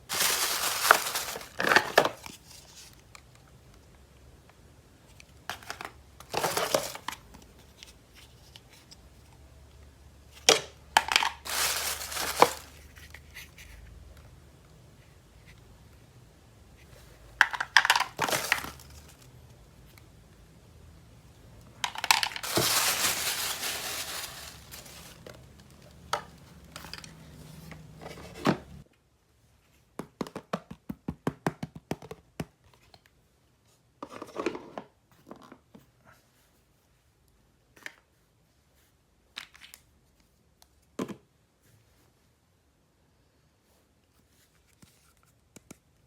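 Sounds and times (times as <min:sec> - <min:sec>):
plastic and paper tearing: 0:00.0 - 0:02.3, 0:11.4 - 0:12.8, 0:22.0 - 0:25.2.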